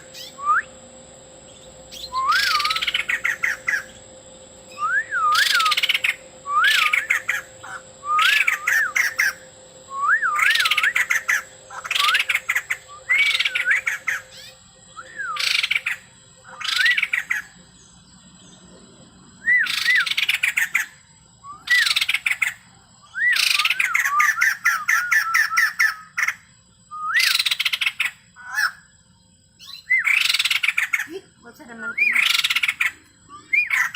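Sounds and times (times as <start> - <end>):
harsh rasping bird chatter: 0.0 - 0.5, 1.3 - 14.7, 15.3 - 18.0, 19.7 - 21.0, 21.7 - 22.7, 29.6 - 33.9
bird singing whistled notes: 0.0 - 0.8, 1.4 - 4.0, 4.6 - 18.7, 19.4 - 26.2, 26.9 - 28.1, 29.6 - 31.0, 31.7 - 33.9.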